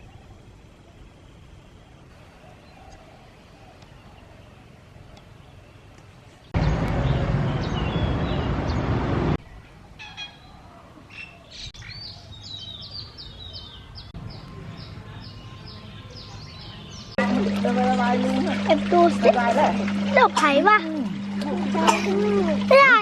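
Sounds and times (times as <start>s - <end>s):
small birds chirping: 0.0s - 17.2s.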